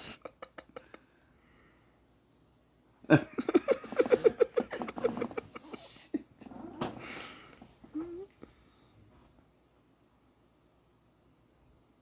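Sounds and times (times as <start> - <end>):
person laughing: 0.0 - 1.0, 3.1 - 6.3.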